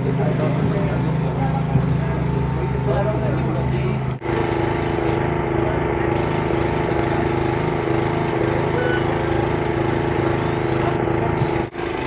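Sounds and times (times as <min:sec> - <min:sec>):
model airplane engine running: 0:04.2 - 0:12.0.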